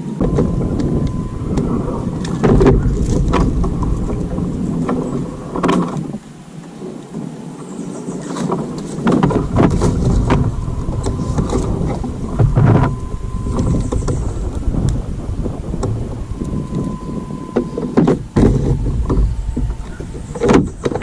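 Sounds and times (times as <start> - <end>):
wind rumbling on microphone: 0.0 - 21.0
knocks and bumps: 0.2 - 6.2, 9.0 - 21.0.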